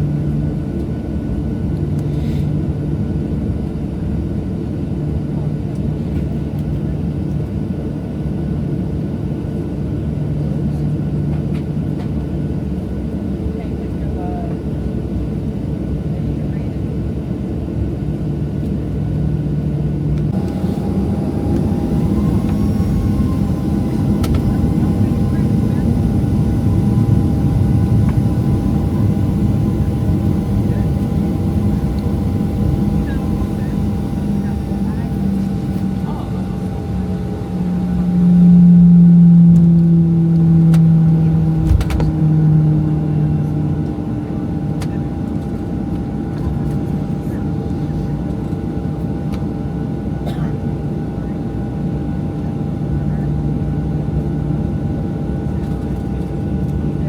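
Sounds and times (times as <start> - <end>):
jet engine cabin rumble: 0.0 - 57.0
steady hum: 20.0 - 44.4
low drone: 20.1 - 44.1
faint clicks in cabin: 23.9 - 25.8, 41.6 - 42.2, 44.8 - 46.8, 55.6 - 56.8.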